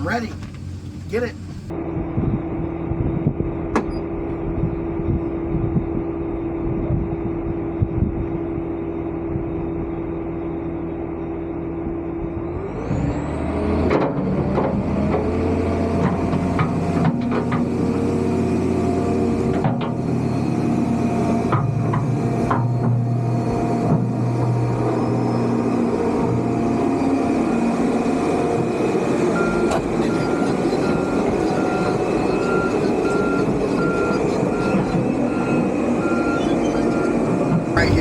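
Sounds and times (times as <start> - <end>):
excavator diesel engine running: 0.0 - 1.9, 19.1 - 38.0.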